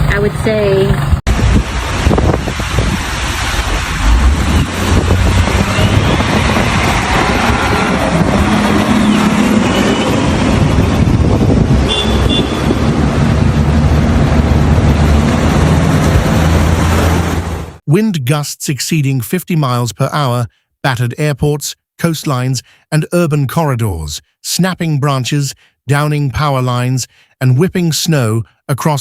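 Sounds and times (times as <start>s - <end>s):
road and wind noise: 0.0s - 17.8s
vehicle engine humming: 0.0s - 17.8s.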